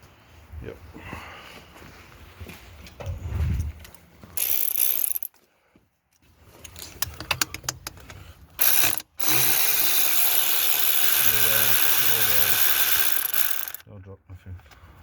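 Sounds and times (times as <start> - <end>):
ratchet wrench clicking: 4.4 - 5.3, 8.6 - 13.8.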